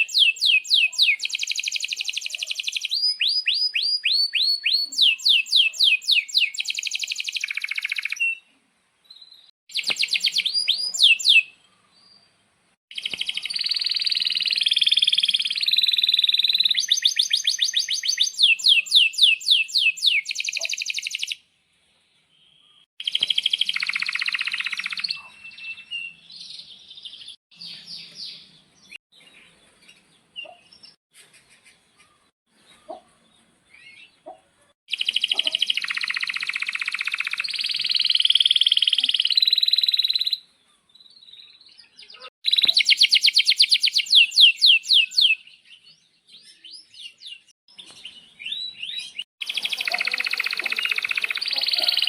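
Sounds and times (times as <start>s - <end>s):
canary singing: 0.0s - 8.4s, 9.2s - 11.6s, 12.9s - 21.4s, 41.2s - 45.8s, 46.6s - 52.0s.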